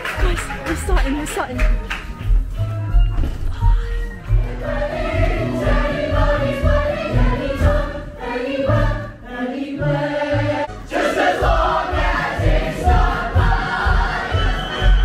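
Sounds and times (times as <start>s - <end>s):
ensemble singing together: 3.6s - 15.0s.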